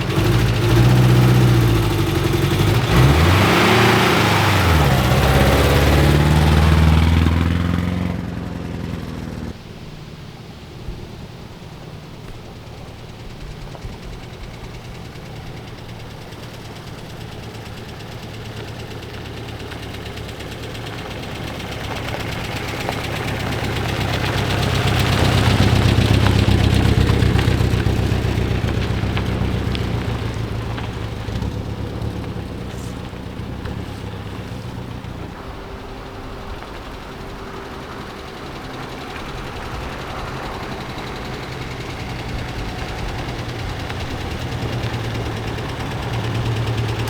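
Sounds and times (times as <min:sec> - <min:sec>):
car engine running: 0:00.0 - 0:47.0.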